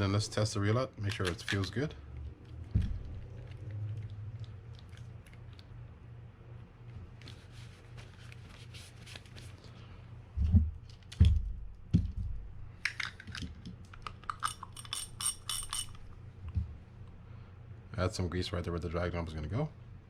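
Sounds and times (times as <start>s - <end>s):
fishing reel parts clicking: 14.0s - 16.0s.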